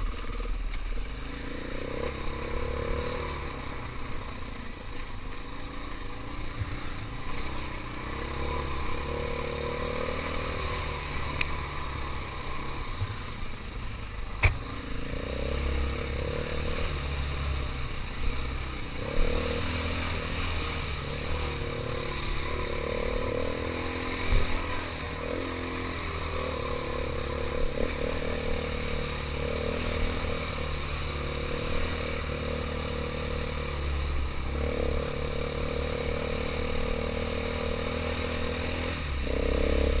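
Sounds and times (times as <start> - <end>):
dirt bike engine revving: 1.2 - 4.4, 5.5 - 13.5, 14.4 - 40.0.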